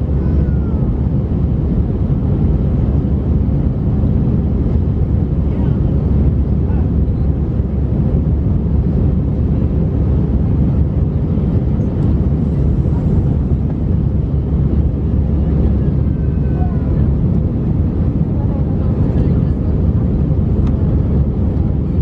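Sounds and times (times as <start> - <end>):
jet engines in cabin: 0.0 - 22.0
rushing air: 12.1 - 16.0.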